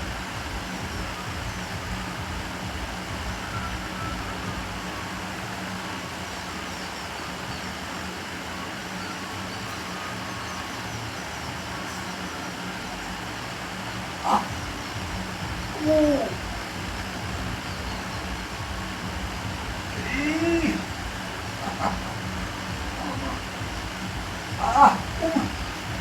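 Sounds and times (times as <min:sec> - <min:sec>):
constant low hum: 0:00.0 - 0:26.0.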